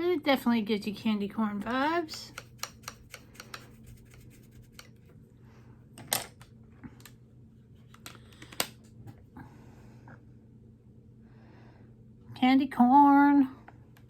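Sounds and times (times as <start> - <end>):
faint steady hum: 0.0 - 14.0
makeup tools clicking and tapping: 1.6 - 4.9.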